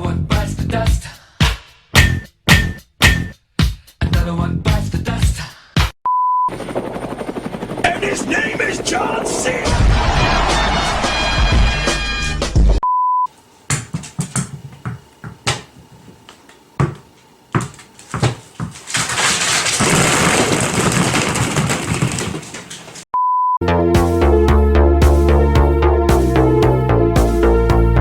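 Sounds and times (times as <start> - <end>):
music with steady beat: 1.4 - 4.8, 23.6 - 28.0
knocks and thuds: 2.0 - 3.3, 16.8 - 23.0
short beep: 23.2 - 23.6.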